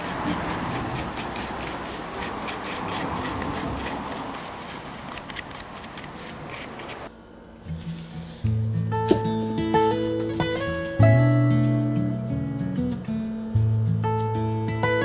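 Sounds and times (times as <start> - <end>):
brush strokes on carved wood: 0.0 - 7.1, 7.7 - 10.8.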